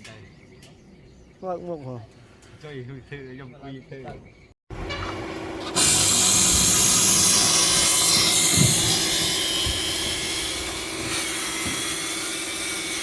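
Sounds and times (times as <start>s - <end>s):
construction machine running with hiss: 5.4s - 13.0s.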